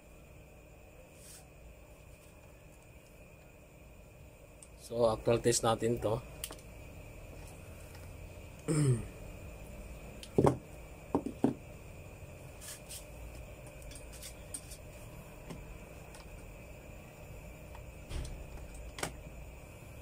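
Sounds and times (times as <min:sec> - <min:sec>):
faint background hum: 0:00.0 - 0:20.0.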